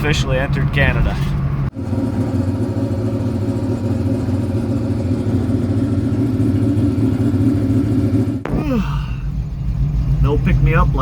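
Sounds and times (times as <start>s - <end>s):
car engine drone: 0.0s - 11.0s
road noise: 0.0s - 11.0s.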